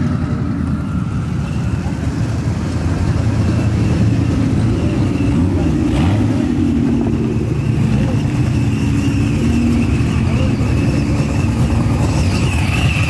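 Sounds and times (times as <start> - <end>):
car engines running: 0.0 - 13.0.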